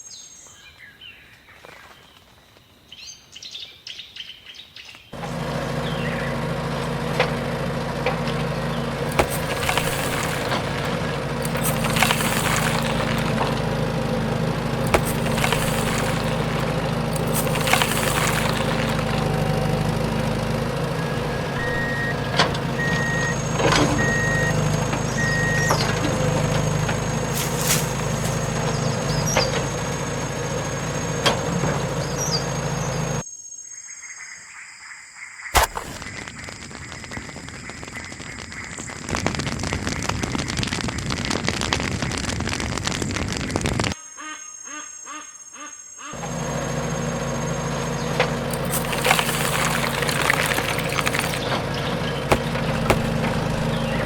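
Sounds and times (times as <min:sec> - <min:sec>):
faint birdsong: 0:00.0 - 0:06.6, 0:48.7 - 0:54.0
construction vehicle engine running: 0:05.2 - 0:33.2, 0:46.2 - 0:54.0
reversing beeps: 0:21.0 - 0:25.9.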